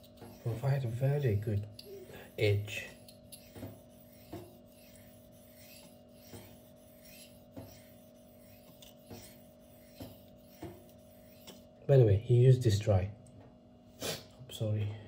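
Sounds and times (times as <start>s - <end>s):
knife stroking sharpening stone: 0.0s - 11.7s.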